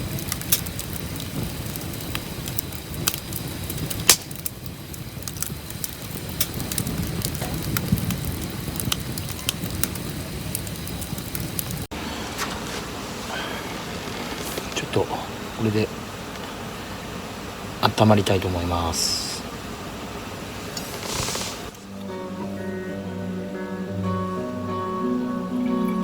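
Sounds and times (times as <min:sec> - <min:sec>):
campfire crackling and popping: 0:00.0 - 0:19.4.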